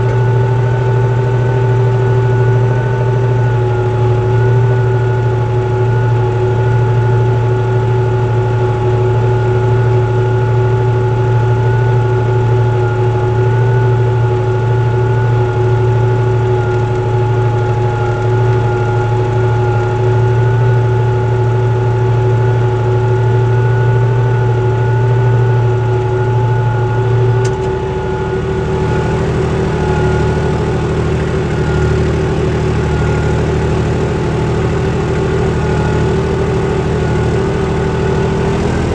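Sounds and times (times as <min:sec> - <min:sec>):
tractor diesel engine droning: 0:00.0 - 0:38.9.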